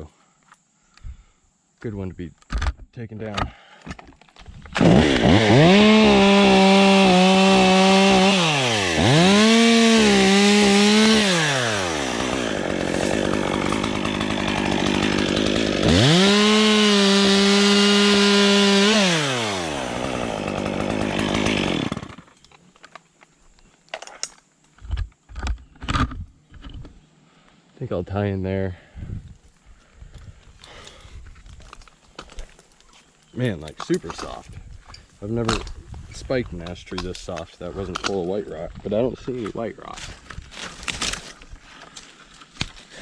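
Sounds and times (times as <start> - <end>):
chainsaw cutting wood: 4.5 - 22.5.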